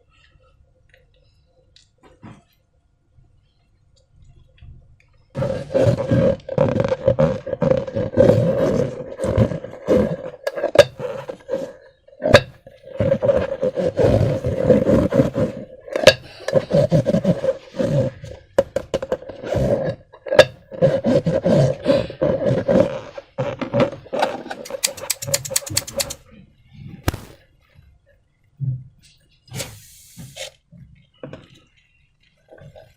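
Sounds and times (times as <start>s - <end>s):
sharp snapping clicks: 24.7s - 26.2s.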